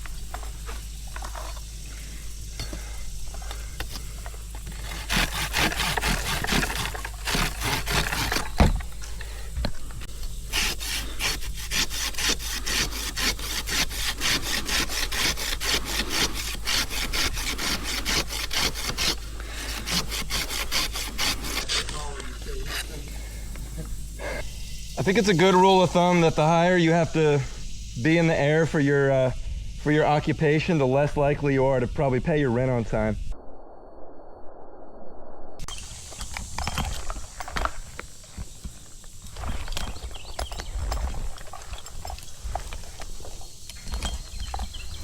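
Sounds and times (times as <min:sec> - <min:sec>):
hand saw cutting wood: 0:03.5 - 0:09.4, 0:10.1 - 0:23.0.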